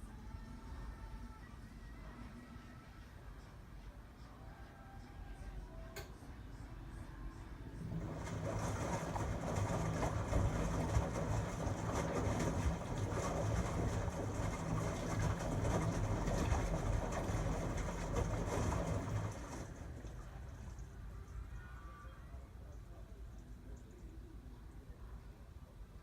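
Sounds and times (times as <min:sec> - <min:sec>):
washing machine running: 0:07.6 - 0:21.4.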